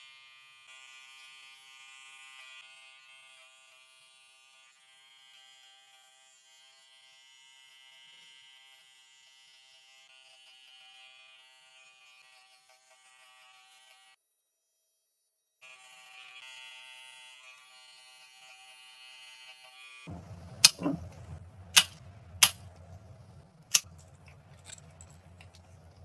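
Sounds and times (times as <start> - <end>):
electric pet grooming tool buzzing: 0.0 - 14.0, 15.7 - 20.9.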